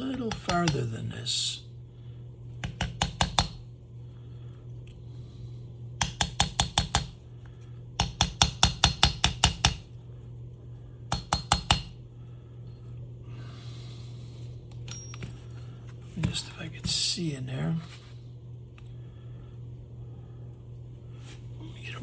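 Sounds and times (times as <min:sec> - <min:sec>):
metal-on-metal tapping: 0:11.1 - 0:11.9.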